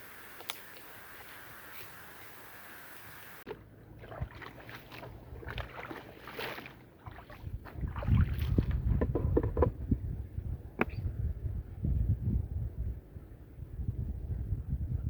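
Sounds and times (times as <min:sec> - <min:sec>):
water splashing: 0:00.0 - 0:08.9
wet rug scrubbing and scraping: 0:04.0 - 0:08.8.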